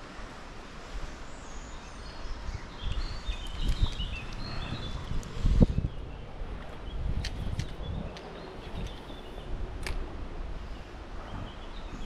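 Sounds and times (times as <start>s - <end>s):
songbird chirping: 1.2s - 10.0s
wind buffeting microphone: 2.0s - 12.0s.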